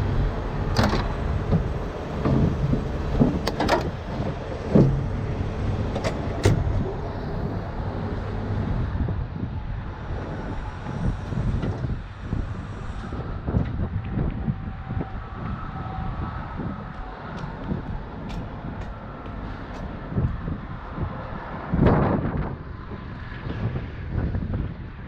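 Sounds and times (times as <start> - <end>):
heavy vehicle idling rumble: 0.0 - 15.5, 16.8 - 20.6.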